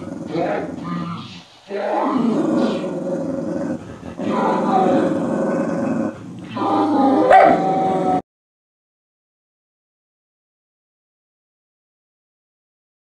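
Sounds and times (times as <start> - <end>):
dogs growling: 0.0 - 8.3.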